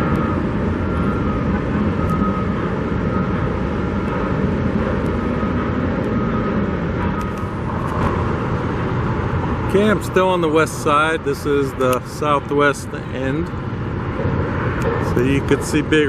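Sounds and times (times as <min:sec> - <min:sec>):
reversing alarm beeping: 0:00.0 - 0:09.4
construction machinery rumble: 0:00.0 - 0:16.0
traffic rumble: 0:00.0 - 0:16.0.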